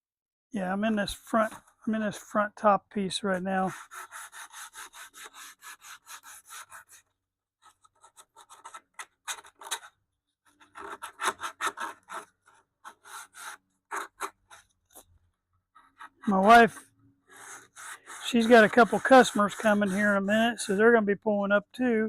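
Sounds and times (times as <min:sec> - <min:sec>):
sandpaper scrubbing wood: 0:03.7 - 0:07.0, 0:16.0 - 0:16.8, 0:17.4 - 0:20.8.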